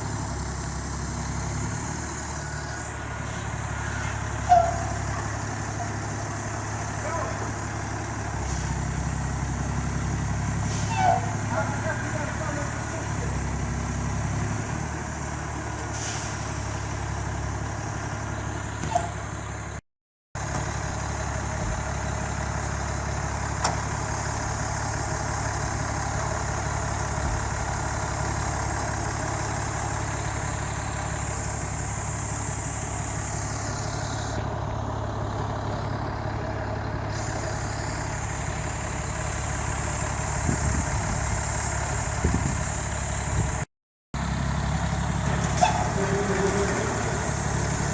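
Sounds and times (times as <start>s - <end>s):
steady outdoor background hum: 0.0s - 16.0s, 44.2s - 47.9s
truck engine running: 0.0s - 19.8s, 20.4s - 47.9s.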